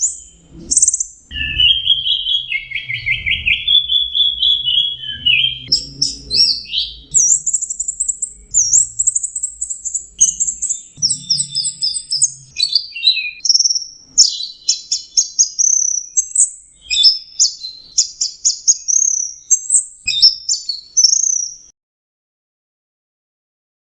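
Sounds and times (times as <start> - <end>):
thrush singing: 0.0 - 13.4.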